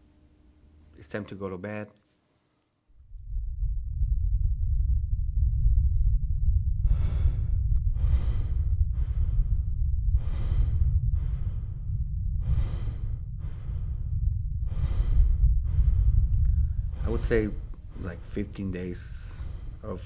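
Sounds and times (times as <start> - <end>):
steady low rumble: 2.9 - 20.0
man breathing heavily: 6.8 - 20.0.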